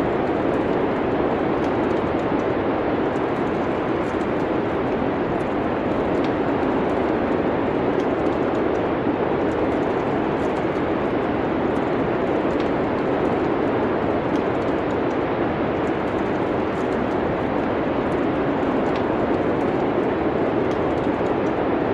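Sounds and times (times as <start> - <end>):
wood fire crackling: 0.0 - 21.7.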